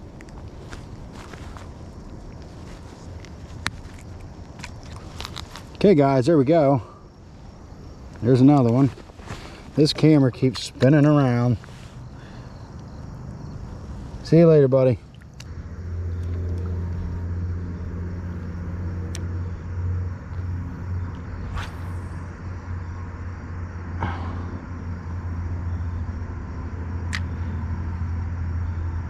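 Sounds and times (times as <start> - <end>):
low engine rumble: 11.7 - 28.1
brief hiss: 21.4 - 22.5.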